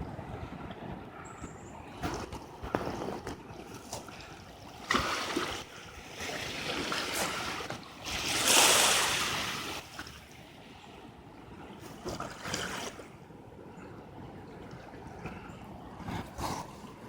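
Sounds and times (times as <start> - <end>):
wind noise on microphone: 0.0 - 10.1
rushing river water: 0.0 - 17.0.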